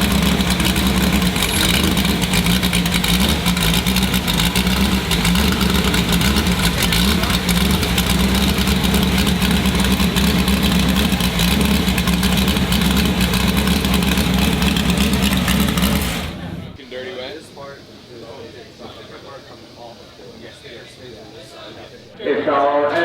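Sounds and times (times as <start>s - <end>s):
car engine idling: 0.0s - 16.8s.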